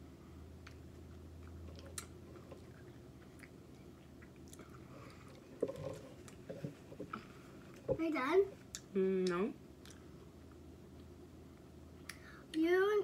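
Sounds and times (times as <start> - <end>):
chewing with wet mouth clicks: 0.6 - 5.4, 8.7 - 11.2.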